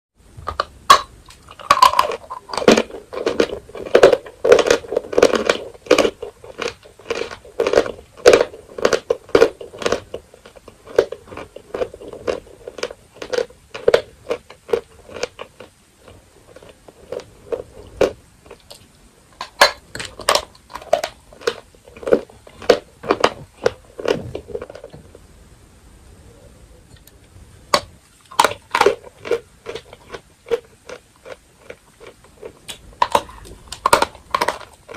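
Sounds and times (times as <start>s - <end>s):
chalk crunching when chewed: 1.0s - 24.9s, 28.2s - 34.9s.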